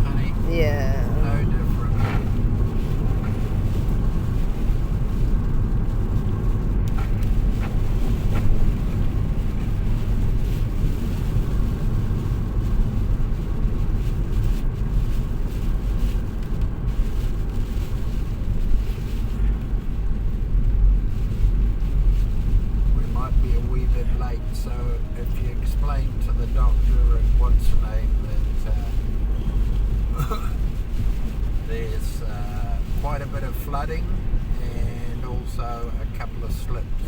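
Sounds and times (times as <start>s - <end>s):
car cabin tyre and engine rumble: 0.0s - 37.0s
light ticks: 16.0s - 18.0s.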